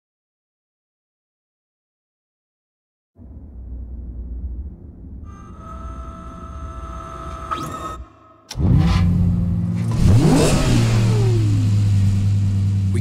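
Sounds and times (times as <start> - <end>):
steady ringing tone: 3.8 - 8.5
sports car engine starting and revving: 4.9 - 13.0.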